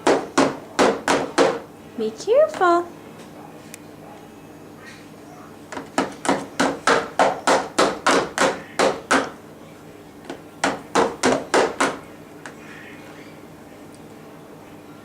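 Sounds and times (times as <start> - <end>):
rapid banging on hard surface: 0.0 - 1.6, 5.7 - 9.4, 10.3 - 12.0.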